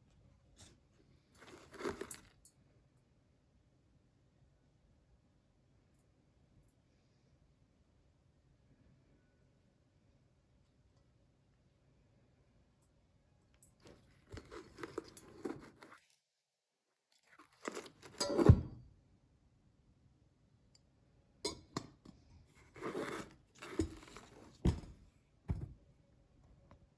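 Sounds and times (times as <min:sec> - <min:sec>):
crunchy rustling: 0:01.4 - 0:02.3, 0:13.9 - 0:16.2, 0:17.2 - 0:18.2.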